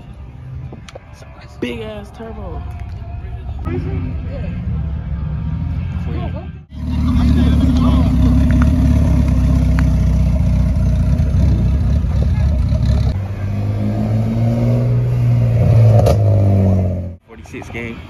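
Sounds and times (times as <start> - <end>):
higher-pitched car engine drone: 3.7 - 17.2
loud low car engine: 3.7 - 17.2.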